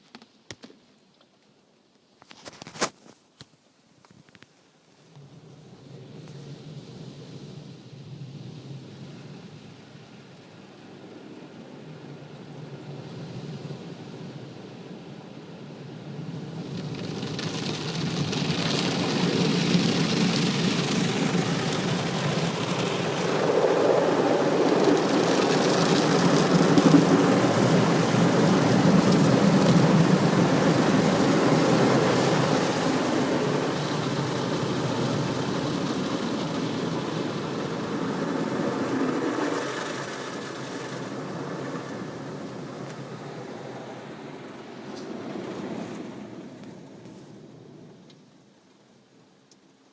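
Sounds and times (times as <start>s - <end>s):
car wash rushing noise: 10.9s - 48.0s.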